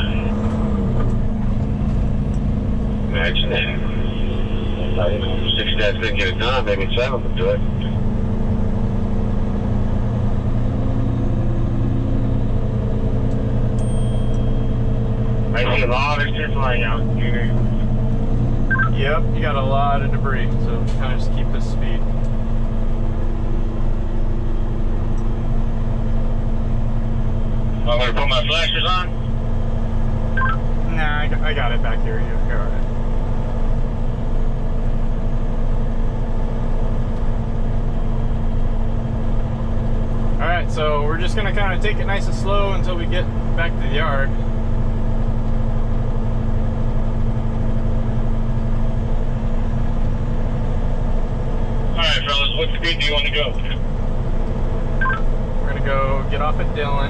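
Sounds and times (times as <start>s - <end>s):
road noise: 0.0s - 57.0s
truck engine running: 0.0s - 57.0s
faint high beep: 18.7s - 19.0s, 30.4s - 30.6s, 55.0s - 55.2s.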